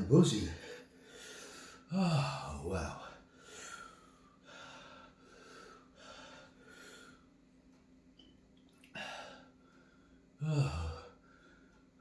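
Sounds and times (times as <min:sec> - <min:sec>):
man breathing hard in puffs: 0:00.6 - 0:01.9, 0:03.2 - 0:07.3.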